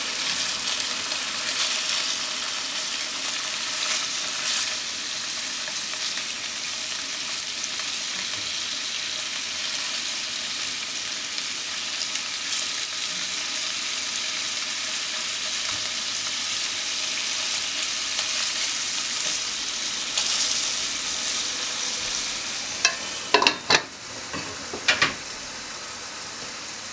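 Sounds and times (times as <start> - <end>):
food sizzling in oil: 0.0 - 26.9
chopsticks turning food: 22.8 - 25.0
glass lid knocking on pan: 22.8 - 25.2.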